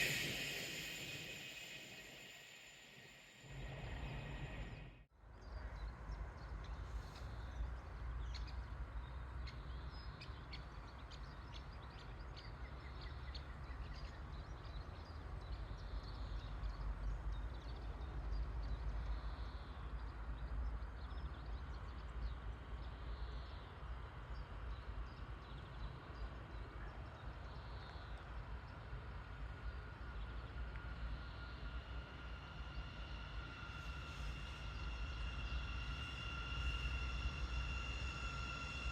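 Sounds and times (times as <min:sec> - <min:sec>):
steady low rumble: 0:00.0 - 0:05.0
faint steady whine: 0:00.0 - 0:05.1, 0:27.7 - 0:38.9.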